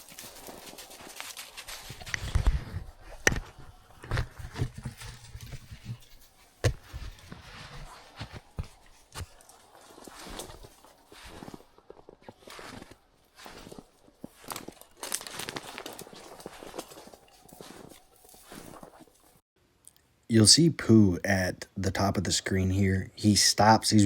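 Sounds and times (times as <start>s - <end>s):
footsteps crunching dry leaves: 0.0s - 3.1s, 6.4s - 19.4s
twigs snapping: 0.0s - 7.2s, 8.0s - 19.4s.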